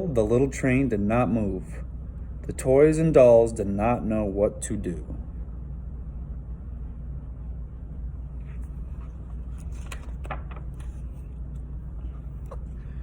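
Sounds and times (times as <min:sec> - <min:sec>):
low background hum: 0:00.0 - 0:13.0
faint soft clicks and rustles: 0:08.4 - 0:12.8.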